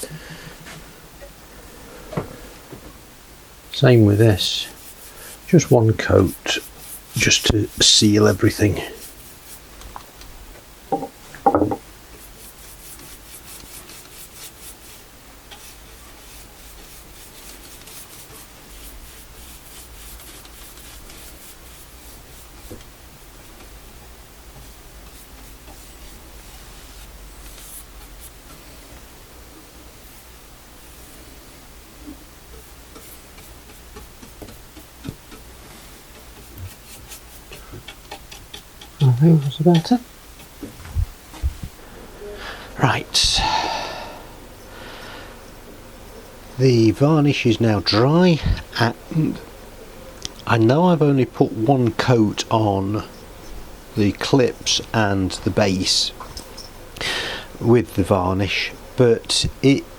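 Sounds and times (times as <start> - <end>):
low steady hum: 0.0 - 59.9
brush rubbing varnish on wood: 3.8 - 9.7, 12.1 - 23.8, 24.5 - 28.8, 32.1 - 39.8.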